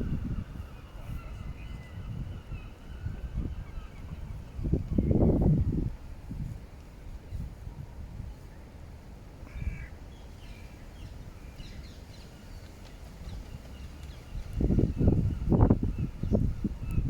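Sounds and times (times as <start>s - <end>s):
faint bird calls: 9.4s - 10.8s.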